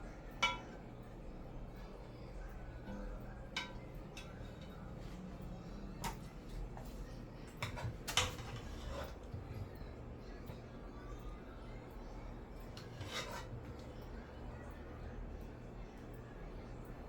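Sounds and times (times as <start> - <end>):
low steady hum: 0.0 - 17.0
utensils clinking on dishes: 0.4 - 0.8, 3.4 - 4.8, 7.5 - 9.8.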